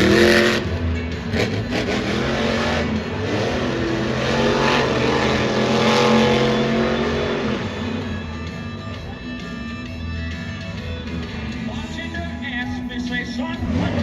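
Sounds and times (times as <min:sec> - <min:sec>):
truck engine revving hard: 0:00.0 - 0:14.0.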